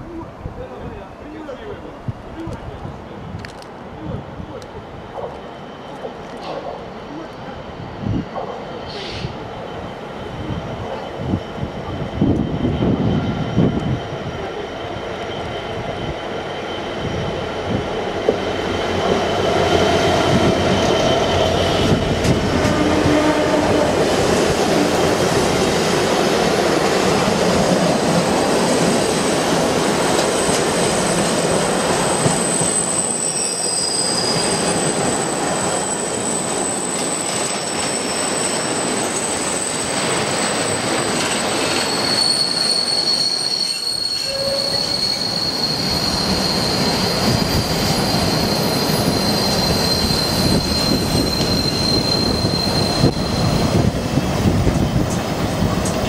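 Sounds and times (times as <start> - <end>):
train wheels rumbling on rail: 1.6 - 56.0
high wheel squeal: 32.1 - 53.9.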